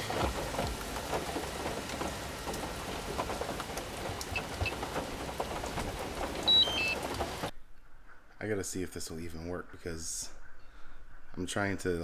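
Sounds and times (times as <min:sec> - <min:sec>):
heavy rain pattering: 0:00.0 - 0:07.5.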